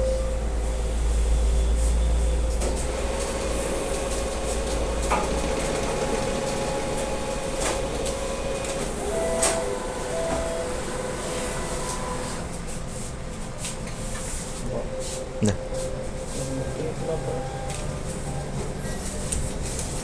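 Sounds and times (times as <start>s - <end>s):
banknote machine mechanical rumble: 0.0s - 13.4s.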